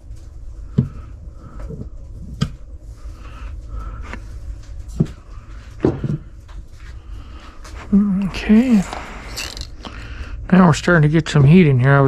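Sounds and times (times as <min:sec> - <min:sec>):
low steady rumble: 0:00.0 - 0:12.0
objects knocking set down: 0:08.8 - 0:09.9.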